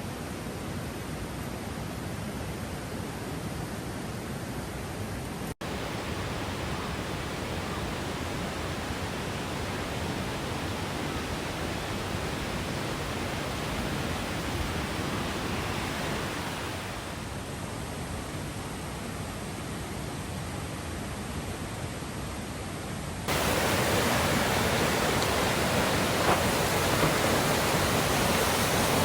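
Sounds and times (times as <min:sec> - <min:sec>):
mountain stream flowing: 0:05.6 - 0:22.2, 0:23.2 - 0:29.0.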